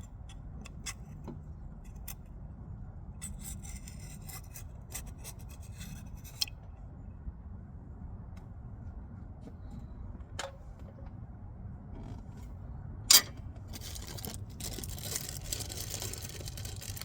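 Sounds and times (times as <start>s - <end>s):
low steady hum: 0.0s - 17.0s
rubber ring rubbing and scraping: 3.2s - 6.6s, 13.7s - 17.0s.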